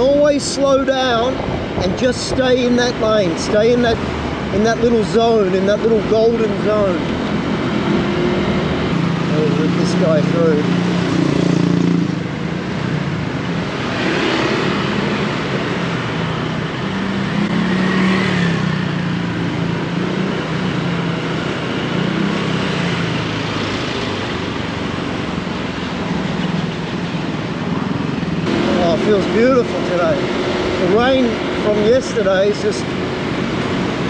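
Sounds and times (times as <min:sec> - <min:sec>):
wind and road noise: 0:00.0 - 0:34.0
scooter engine running: 0:27.1 - 0:31.9.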